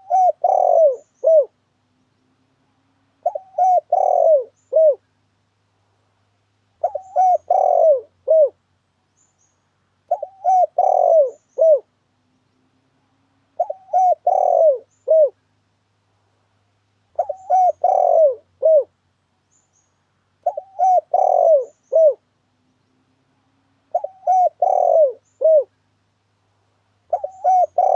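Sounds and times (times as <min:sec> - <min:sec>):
dove cooing: 0:00.0 - 0:01.6, 0:03.2 - 0:05.0, 0:06.8 - 0:08.6, 0:10.1 - 0:11.9, 0:13.6 - 0:15.4, 0:17.2 - 0:18.9, 0:20.4 - 0:22.3, 0:23.9 - 0:25.7, 0:27.1 - 0:27.9.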